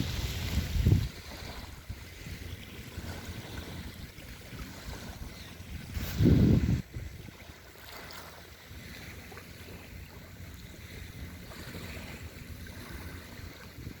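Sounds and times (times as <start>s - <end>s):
sea surf: 0.0s - 14.0s
wind rumbling on microphone: 0.0s - 14.0s.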